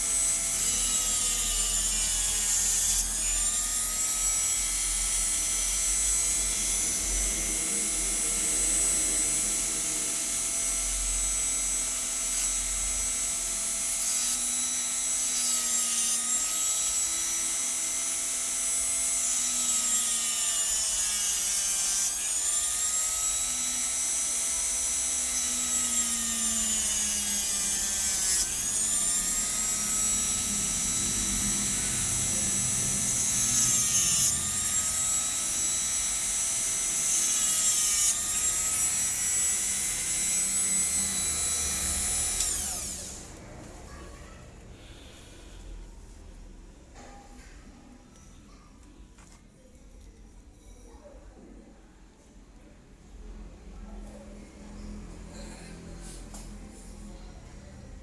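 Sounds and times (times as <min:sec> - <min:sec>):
lens edge rasping on grinder: 0:00.0 - 0:43.4
electric hand grinder whining: 0:00.0 - 0:44.0.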